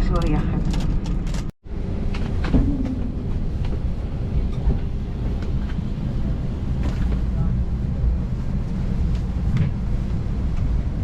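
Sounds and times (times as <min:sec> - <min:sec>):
aircraft engines rumbling: 0:00.0 - 0:11.0
wheels rolling on taxiway: 0:00.0 - 0:11.0.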